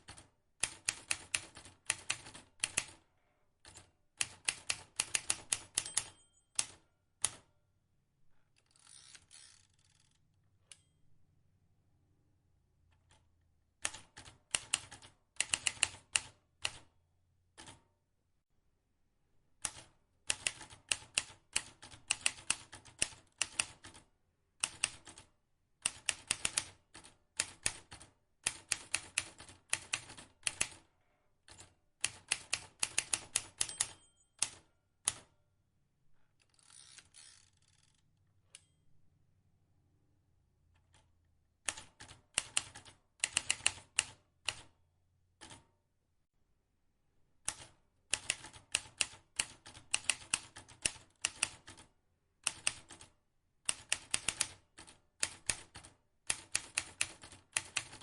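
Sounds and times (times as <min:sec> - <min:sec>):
typewriter keys clicking: 0:31.5 - 0:35.3, 0:41.7 - 0:44.6, 0:47.5 - 0:51.8, 0:52.4 - 0:53.1, 0:53.7 - 0:58.0.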